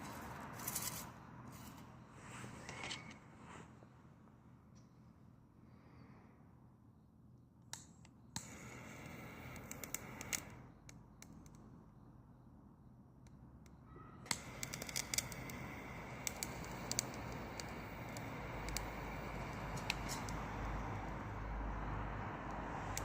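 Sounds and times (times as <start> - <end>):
fire rushing: 14.3 - 23.0
branches crackling and popping in fire: 16.2 - 17.7.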